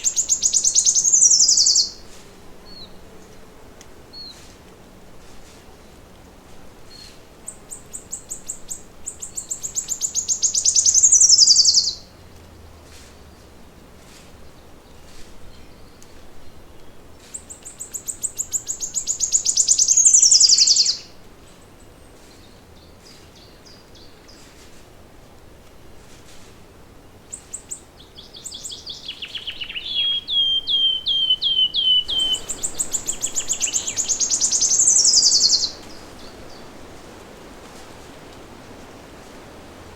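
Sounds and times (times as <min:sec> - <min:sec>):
songbird singing: 0:00.0 - 0:03.4, 0:06.9 - 0:12.1, 0:14.5 - 0:24.4, 0:27.0 - 0:39.9.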